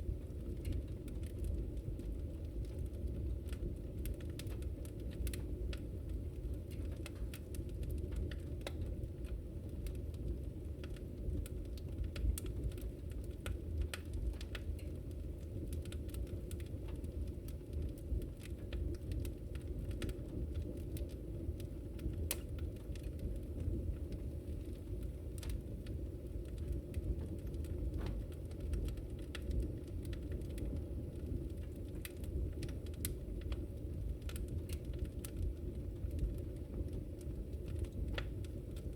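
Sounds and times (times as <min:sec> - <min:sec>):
fire crackles and pops: 0:00.0 - 0:38.9
wood fire rumbling: 0:00.0 - 0:38.9.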